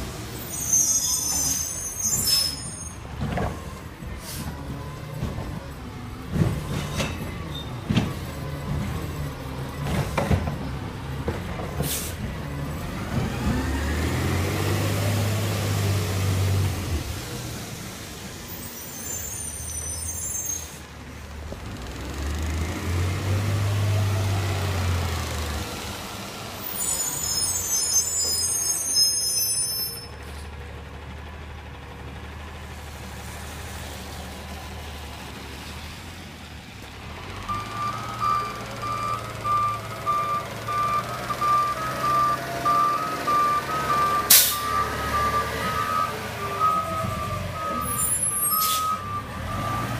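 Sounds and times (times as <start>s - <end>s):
air brakes hissing: 4.2s - 4.6s, 11.8s - 12.2s, 18.5s - 20.9s, 26.6s - 30.5s, 43.8s - 44.9s, 47.7s - 49.1s
truck diesel engine revving: 8.1s - 18.3s, 21.5s - 26.8s, 30.5s - 49.9s
reversing beeper beeping: 37.5s - 49.9s.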